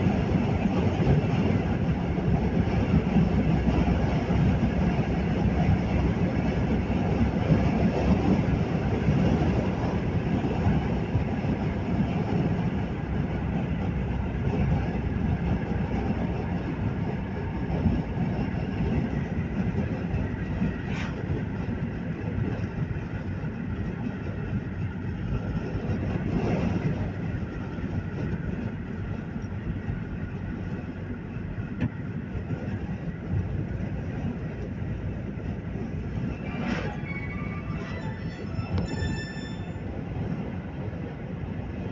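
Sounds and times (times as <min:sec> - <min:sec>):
vehicle driving on road: 0:00.0 - 0:41.9.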